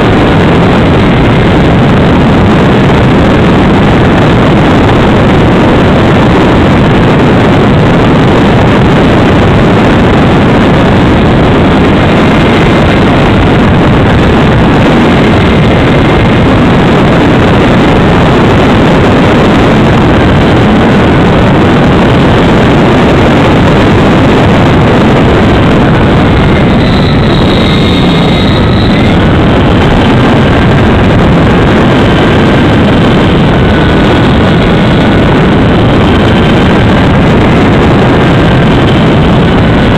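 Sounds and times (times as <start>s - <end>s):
wind and propeller noise: 0.0s - 39.9s
electric motor whine: 22.4s - 37.7s.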